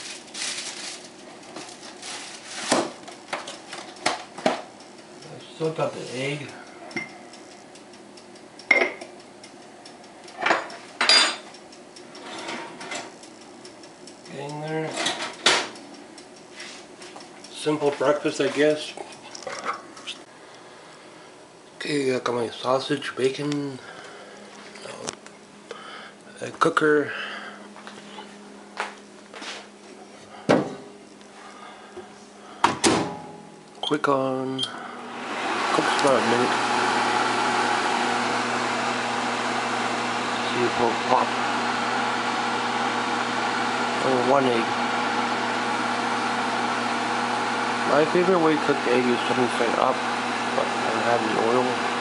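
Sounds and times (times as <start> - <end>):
dishes clinking: 8.7 - 9.1, 10.4 - 11.5.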